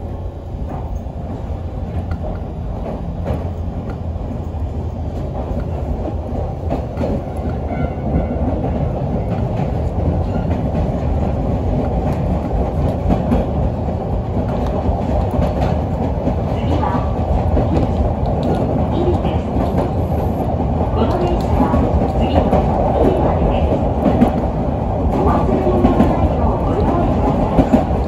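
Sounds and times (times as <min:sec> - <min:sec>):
rumble of wheels on rail: 0:00.0 - 0:28.0
faint clicks over rail joints: 0:05.1 - 0:20.0.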